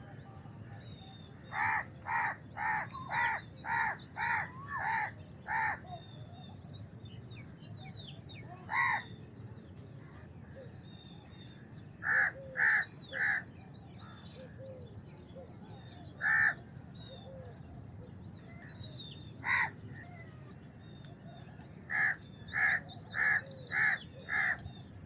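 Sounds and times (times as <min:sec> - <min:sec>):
small birds chirping: 0:01.2 - 0:25.0
crow cawing: 0:01.6 - 0:05.8, 0:08.7 - 0:09.1, 0:12.0 - 0:13.4, 0:16.2 - 0:16.6, 0:19.4 - 0:19.8, 0:21.9 - 0:24.6.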